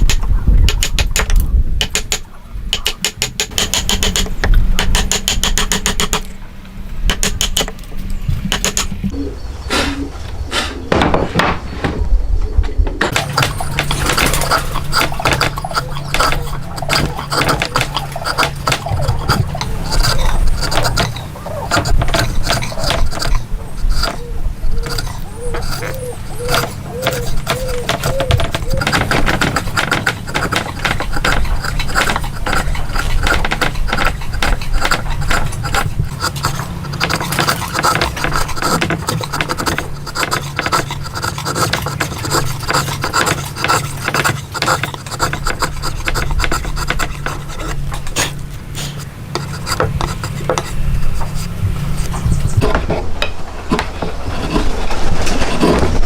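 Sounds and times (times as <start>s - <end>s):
irregular knocks and taps: 0.0s - 6.3s, 26.5s - 47.4s
low steady hum: 3.7s - 56.0s.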